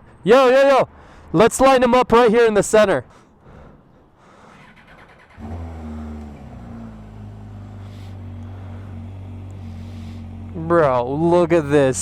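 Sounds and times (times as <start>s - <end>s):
engine starting and idling: 4.5s - 10.2s.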